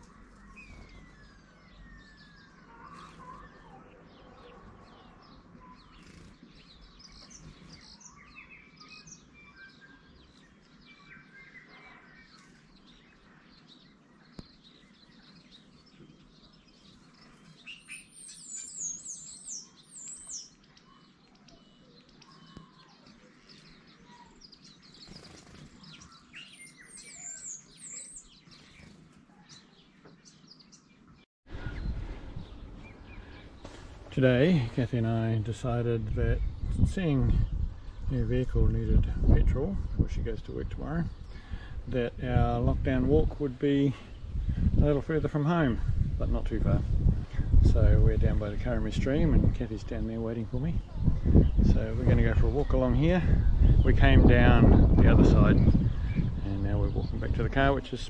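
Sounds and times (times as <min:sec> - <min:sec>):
small birds chirping: 0:00.0 - 0:58.0
rapid high twittering: 0:22.2 - 0:29.6.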